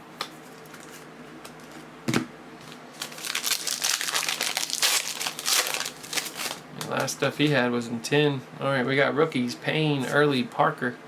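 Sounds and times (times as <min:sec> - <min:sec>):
foil wrapper crinkling and tearing: 0:02.9 - 0:07.1.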